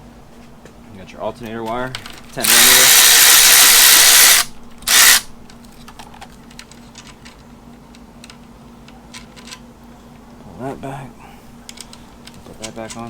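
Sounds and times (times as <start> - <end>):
power tool bursts: 2.4 - 5.3
light clicking of parts: 4.8 - 10.2, 11.6 - 13.0.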